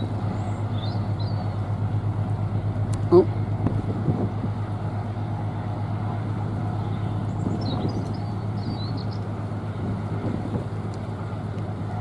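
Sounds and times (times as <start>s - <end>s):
low engine drone: 0.0s - 12.0s
wind on microphone: 3.3s - 5.0s, 6.9s - 12.0s.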